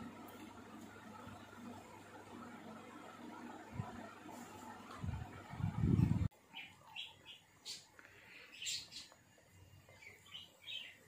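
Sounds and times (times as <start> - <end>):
faint bird chirps: 6.4 - 9.2, 9.8 - 11.0.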